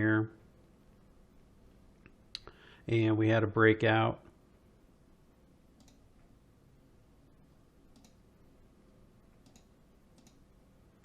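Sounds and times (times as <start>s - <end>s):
faint sharp clicks: 5.8s - 6.0s, 7.9s - 8.2s, 9.4s - 10.4s.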